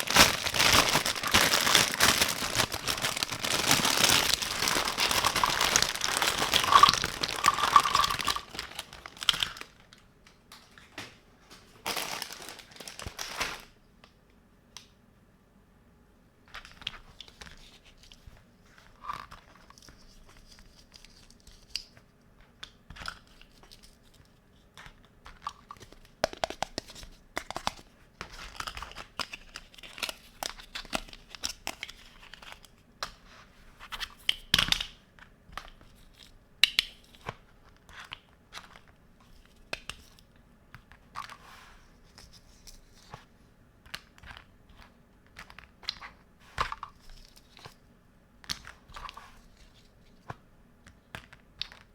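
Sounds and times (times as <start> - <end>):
plastic pieces clicking: 0.0 - 9.7
packaging tearing and crinkling: 0.0 - 9.9, 11.8 - 13.7.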